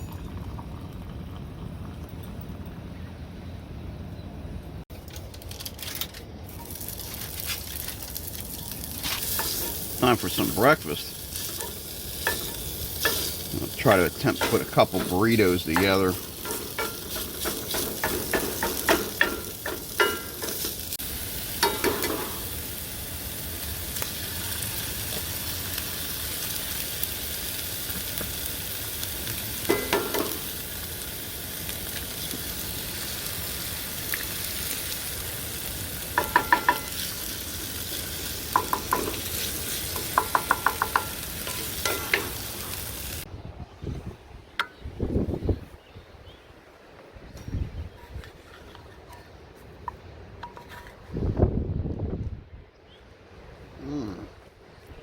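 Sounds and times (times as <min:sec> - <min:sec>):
food sizzling in a frying pan: 0:06.5 - 0:43.3.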